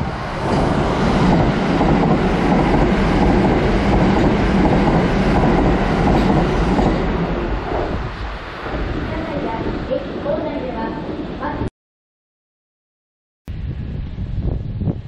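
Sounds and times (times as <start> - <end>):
electric train passing: 0.0 - 11.7.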